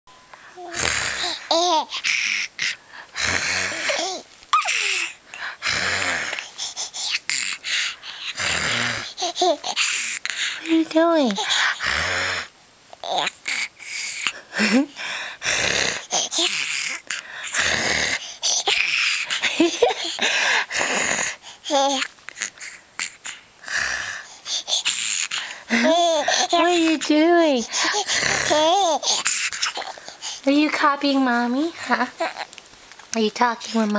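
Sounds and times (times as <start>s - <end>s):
raspy wheezy throat noises: 0.6s - 10.8s, 11.4s - 30.5s
baby squealing: 3.7s - 5.2s.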